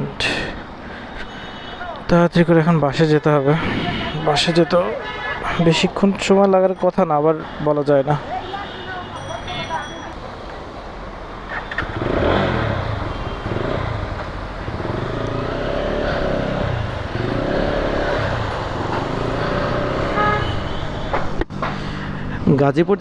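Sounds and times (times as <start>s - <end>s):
vehicle horn: 8.4s - 10.0s, 19.6s - 21.1s
motorcycle engine revving: 11.5s - 21.2s.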